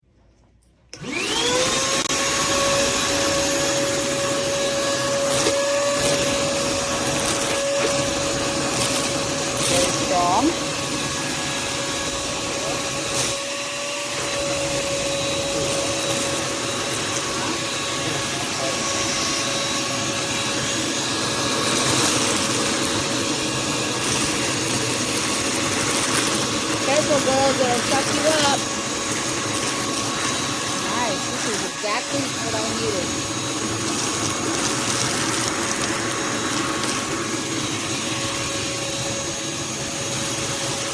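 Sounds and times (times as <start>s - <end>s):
wet dry vacuum motor whining: 0.9s - 40.9s.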